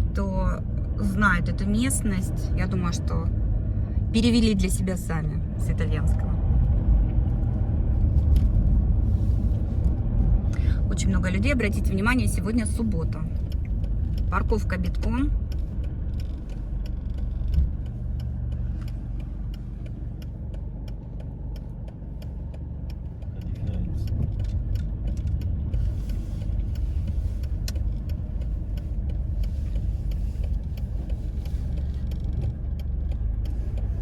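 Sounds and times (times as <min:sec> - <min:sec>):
engine and tyre rumble: 0:00.0 - 0:34.0
small clicks and rattles: 0:11.7 - 0:34.0.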